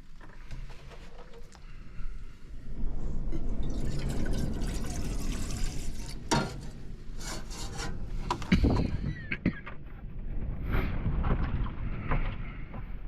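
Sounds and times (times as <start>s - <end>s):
water pouring into a pot: 3.3s - 6.7s.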